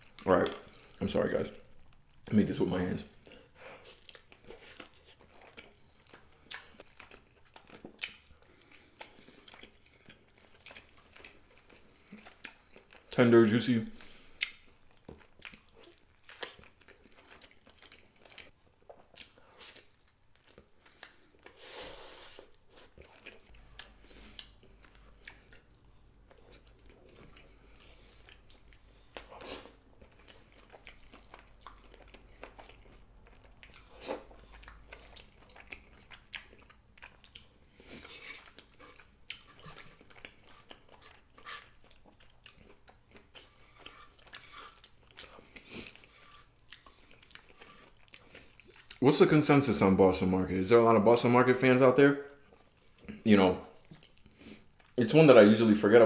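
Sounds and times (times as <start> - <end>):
chewing and biting chicken: 22.2 - 49.0.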